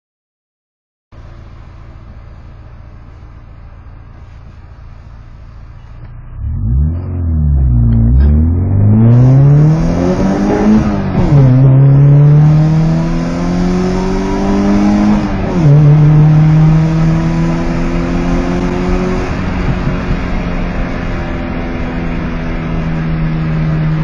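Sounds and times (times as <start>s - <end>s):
car engine accelerating hard: 5.8s - 24.0s.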